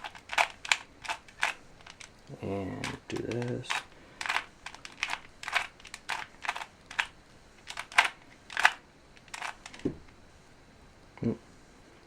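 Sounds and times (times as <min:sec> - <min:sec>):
plastic puzzle cube clicking: 0:00.0 - 0:02.1, 0:02.8 - 0:09.9.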